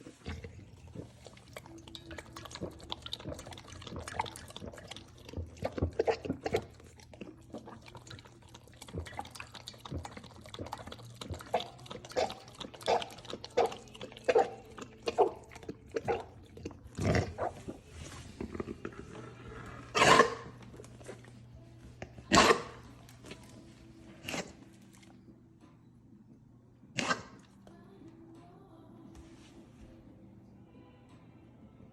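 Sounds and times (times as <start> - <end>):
dog lapping water: 0.0 - 25.2
dog coughing: 19.9 - 20.6, 22.3 - 22.8, 27.0 - 27.4.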